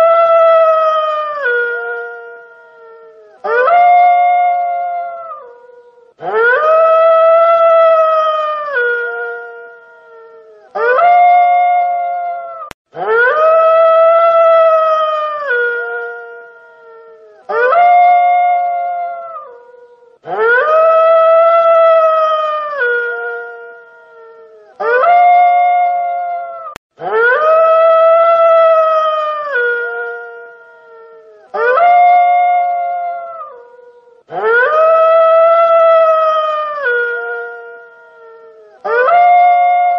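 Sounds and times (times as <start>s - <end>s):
wolf howling: 0.0s - 39.9s.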